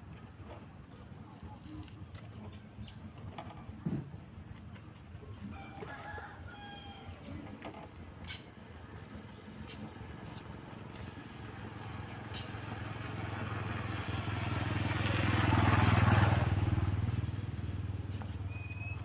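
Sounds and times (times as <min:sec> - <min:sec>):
vehicle engine hum driving past: 0:08.9 - 0:19.0.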